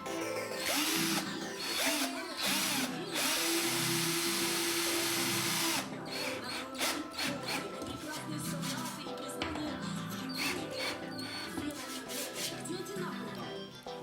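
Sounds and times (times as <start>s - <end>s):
background music: 0.0s - 14.0s
cordless screwdriver motor: 0.6s - 7.7s, 10.4s - 12.5s.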